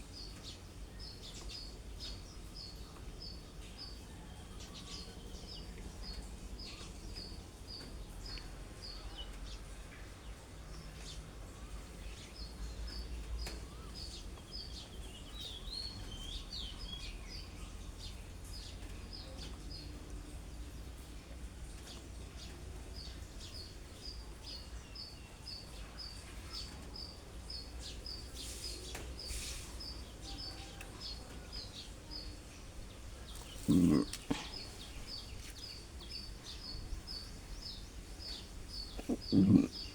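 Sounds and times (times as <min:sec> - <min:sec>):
bird chirping: 0:21.8 - 0:39.9.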